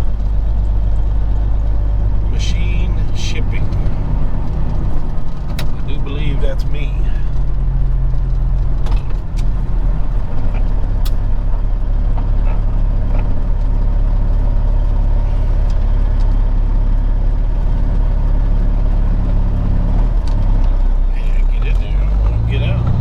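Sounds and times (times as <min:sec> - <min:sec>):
diesel truck engine running: 0:00.0 - 0:23.0
light ticks and rattles: 0:02.3 - 0:20.9.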